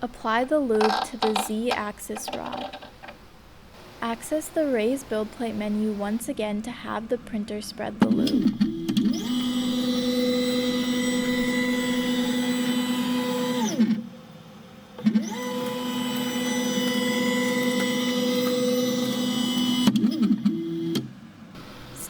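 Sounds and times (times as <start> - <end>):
stepper motor whine: 8.2 - 21.0.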